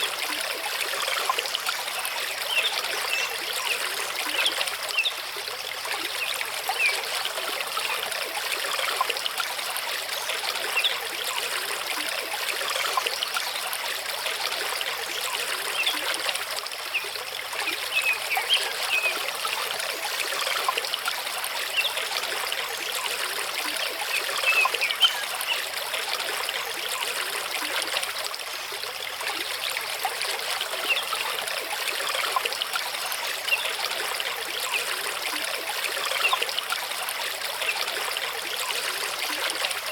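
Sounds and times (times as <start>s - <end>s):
stream rushing over rocks: 0.0s - 5.1s.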